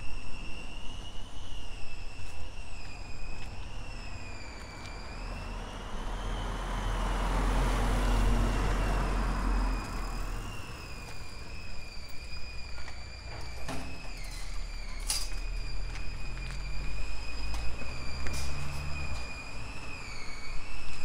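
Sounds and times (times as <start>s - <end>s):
high-pitched whine: 0.0s - 21.0s
vehicle passing: 4.6s - 11.6s, 15.6s - 21.0s.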